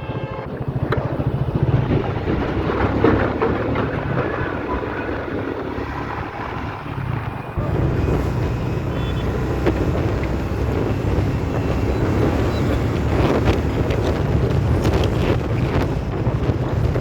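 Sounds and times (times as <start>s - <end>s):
motorcycle engine running: 0.0s - 17.0s
wind and road noise: 0.0s - 17.0s.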